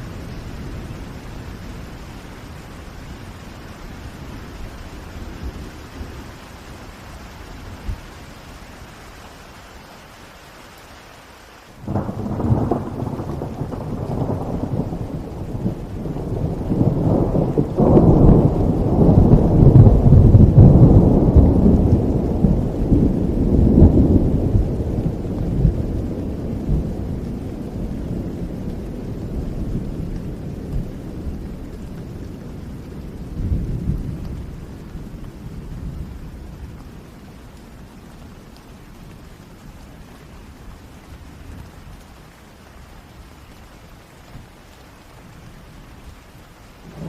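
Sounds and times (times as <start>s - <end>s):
steady rain: 0.0s - 47.0s
thunder crack and rumble: 11.8s - 38.0s, 46.7s - 47.0s.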